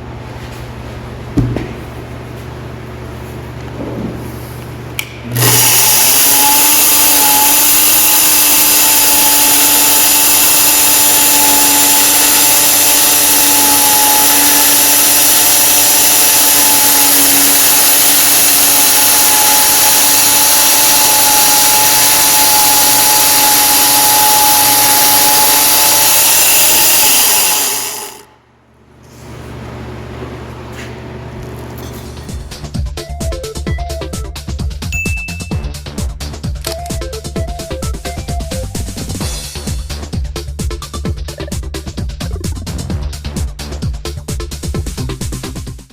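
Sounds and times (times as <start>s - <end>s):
power tool motor running: 5.0s - 28.4s.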